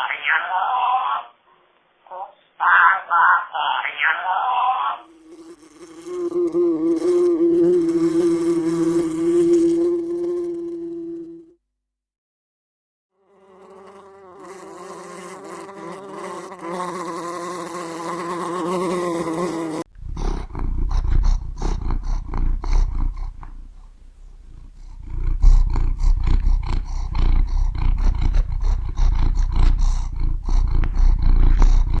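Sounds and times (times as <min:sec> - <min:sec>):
flying insect buzzing: 0:05.0 - 0:11.6, 0:13.2 - 0:23.8
loud rough low rumbling: 0:19.9 - 0:32.0.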